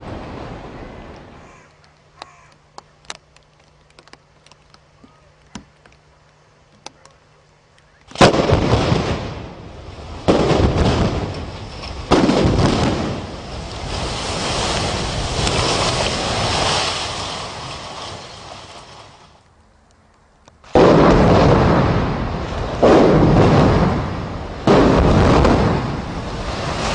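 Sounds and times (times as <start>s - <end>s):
loud demolition blasts: 8.1s - 18.2s, 20.7s - 26.9s
building collapsing rumble: 8.2s - 19.4s, 20.7s - 26.9s.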